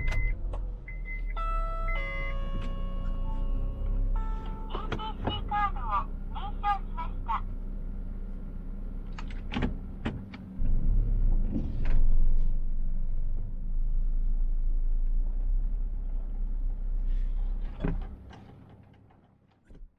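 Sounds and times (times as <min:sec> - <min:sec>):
car engine running: 0:02.8 - 0:18.2.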